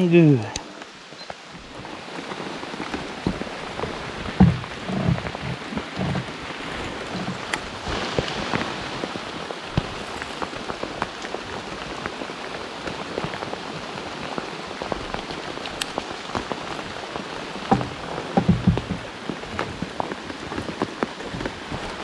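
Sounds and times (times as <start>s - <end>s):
heavy rain pouring: 0.0s - 22.0s
deep thumps: 3.2s - 6.3s, 17.7s - 20.0s.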